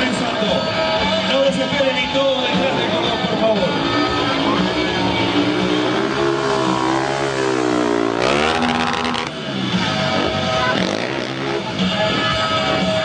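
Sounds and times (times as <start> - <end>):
motorcycle engine revving: 3.2 - 13.0.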